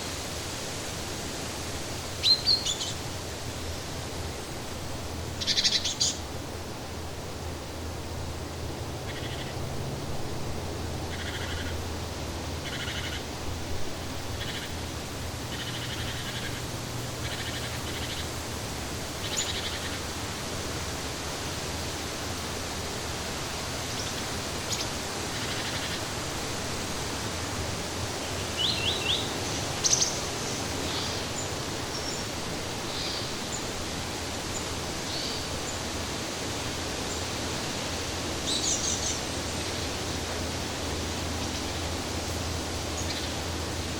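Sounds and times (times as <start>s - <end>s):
birds calling: 5.4s - 6.2s, 11.1s - 11.8s, 12.6s - 13.3s, 14.3s - 18.4s.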